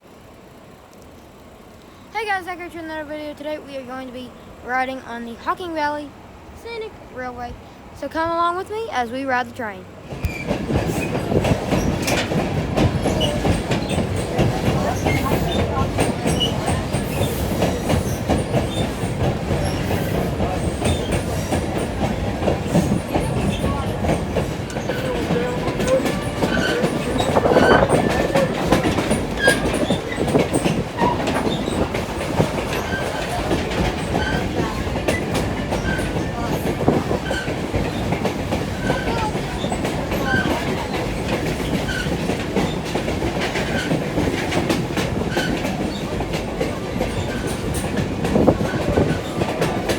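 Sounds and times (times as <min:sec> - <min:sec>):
train wheels clattering over rails: 0:10.0 - 0:49.9.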